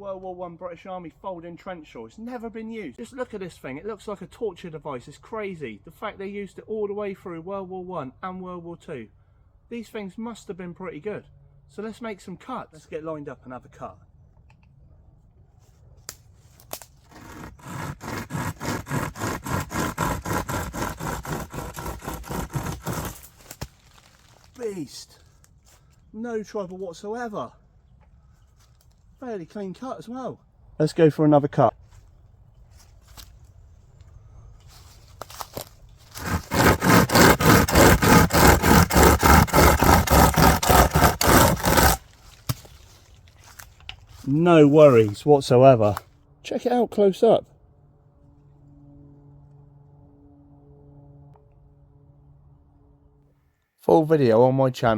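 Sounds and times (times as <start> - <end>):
saw rasping through wood: 17.1 - 23.5, 36.1 - 42.7.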